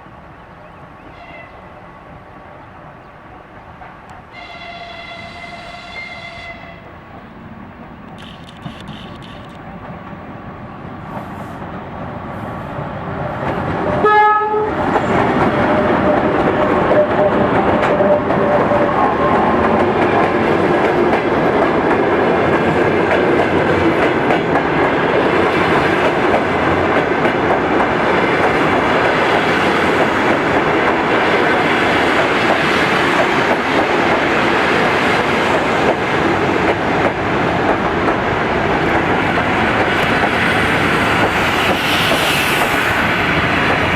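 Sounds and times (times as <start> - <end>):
train rumble and wheel clatter: 0.0 - 43.9
train horn blast: 1.1 - 1.7, 4.3 - 6.9, 14.0 - 14.8.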